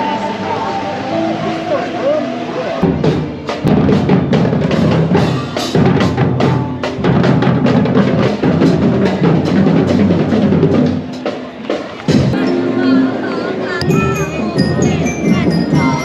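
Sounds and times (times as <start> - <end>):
drum-led music: 0.0 - 12.9, 13.6 - 16.0
bass drum: 2.8 - 11.2.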